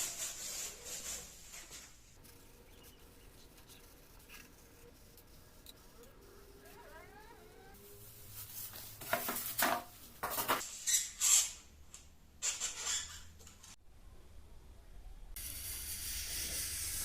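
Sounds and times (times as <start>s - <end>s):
squeaky foam scraping: 10.6s - 11.6s, 12.4s - 13.6s.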